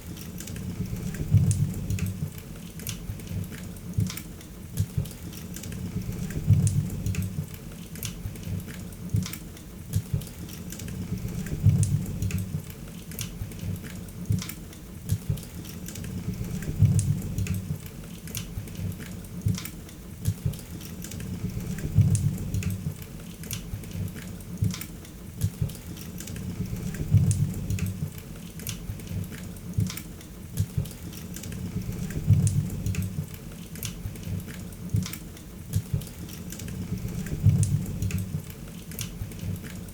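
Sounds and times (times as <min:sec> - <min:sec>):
low rumble of flames: 0:00.6 - 0:02.4, 0:05.7 - 0:07.6, 0:10.9 - 0:12.7, 0:16.0 - 0:17.9, 0:21.2 - 0:23.0, 0:26.4 - 0:28.2, 0:31.5 - 0:33.4, 0:36.7 - 0:38.5.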